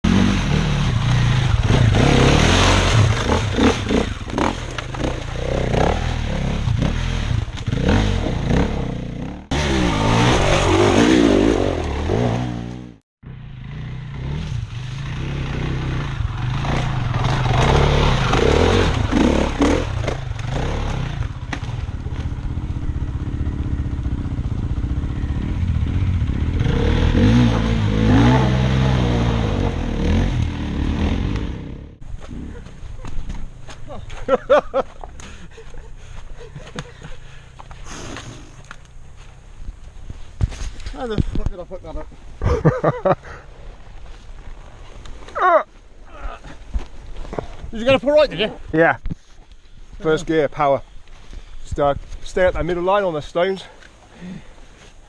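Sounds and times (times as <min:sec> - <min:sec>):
motorcycle engines revving: 0:00.0 - 0:40.2.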